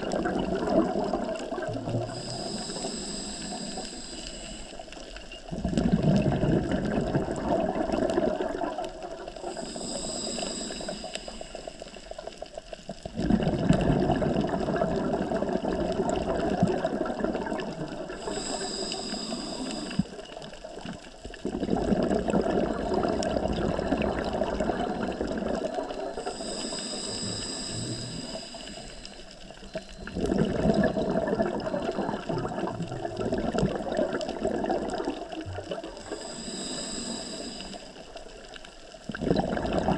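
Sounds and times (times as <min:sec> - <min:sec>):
exhaled bubbles burbling: 0:00.0 - 0:03.0, 0:05.3 - 0:10.1, 0:12.8 - 0:26.5, 0:27.7 - 0:36.8, 0:37.9 - 0:39.9
regulator hiss on inhale: 0:01.4 - 0:05.5, 0:08.8 - 0:13.0, 0:17.4 - 0:21.4, 0:22.7 - 0:30.1, 0:35.9 - 0:39.1.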